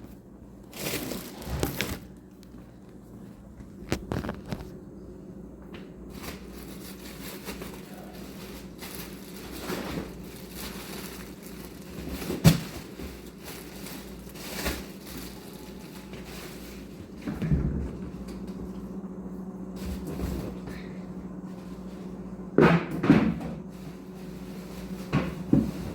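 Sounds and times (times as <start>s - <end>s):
steady low hum: 0.0s - 25.9s
rustling and crackling: 0.7s - 2.8s, 3.6s - 4.8s, 6.1s - 18.6s.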